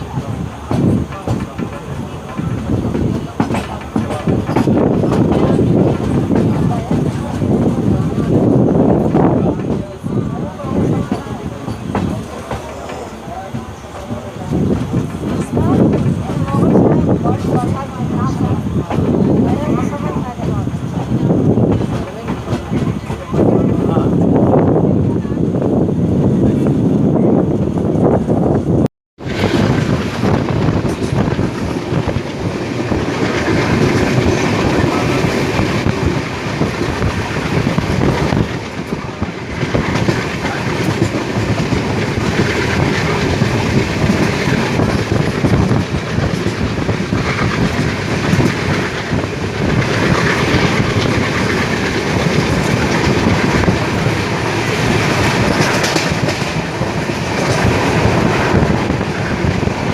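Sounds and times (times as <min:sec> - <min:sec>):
train wheels rumbling and rattling: 0:00.0 - 0:59.9.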